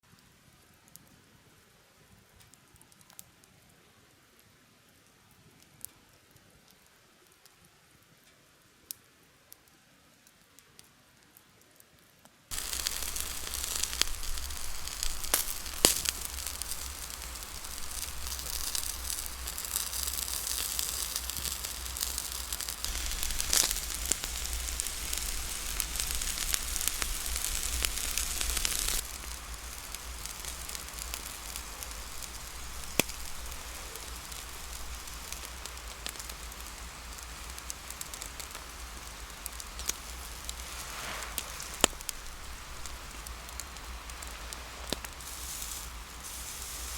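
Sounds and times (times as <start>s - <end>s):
campfire crackling and popping: 12.5s - 46.9s
steady fire hiss: 12.5s - 46.9s.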